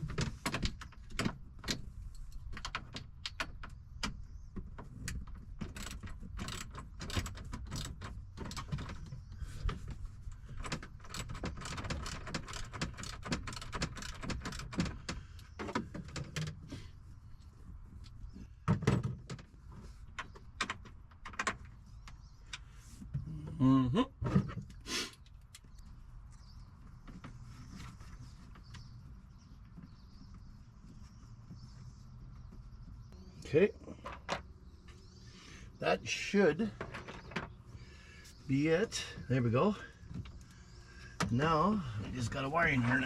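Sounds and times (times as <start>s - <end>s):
tools and fasteners rattling: 0.0s - 17.0s, 35.8s - 37.9s.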